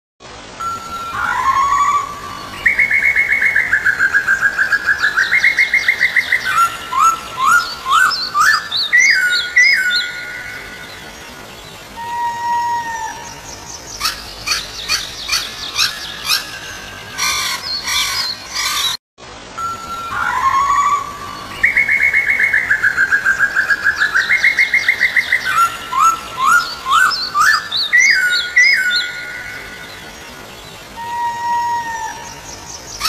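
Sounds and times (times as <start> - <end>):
bird trill: 14.0 - 19.0.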